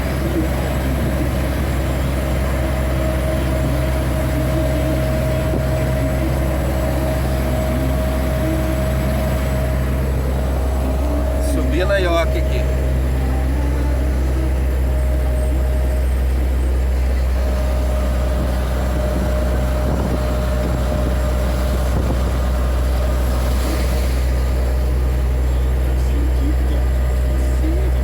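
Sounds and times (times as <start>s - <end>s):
truck diesel engine droning: 0.0s - 28.0s.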